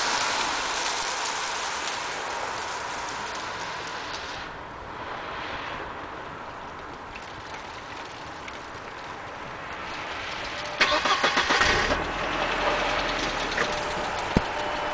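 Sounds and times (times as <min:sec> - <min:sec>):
engine idling: 0:07.2 - 0:14.9
engine cranking and starting: 0:10.5 - 0:14.9.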